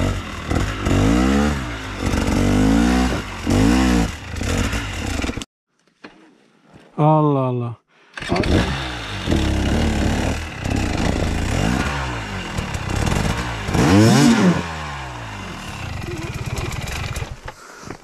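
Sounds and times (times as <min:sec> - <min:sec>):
dirt bike engine revving: 0:00.0 - 0:05.4, 0:08.2 - 0:17.5.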